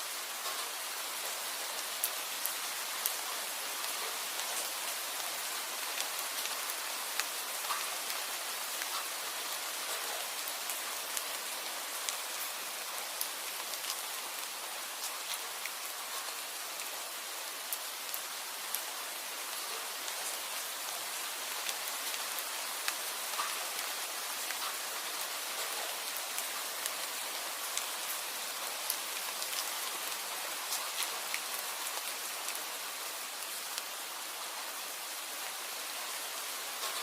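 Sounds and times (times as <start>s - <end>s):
steady rain hiss: 0.0s - 37.0s
rain drop ticks: 7.2s - 7.9s, 8.8s - 9.2s, 22.8s - 23.9s, 24.5s - 24.8s, 36.8s - 37.0s.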